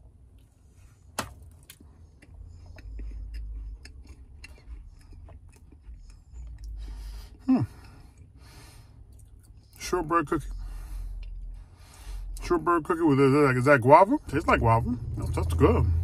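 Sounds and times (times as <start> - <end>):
person chewing cookie: 1.3 - 9.8, 10.4 - 12.4.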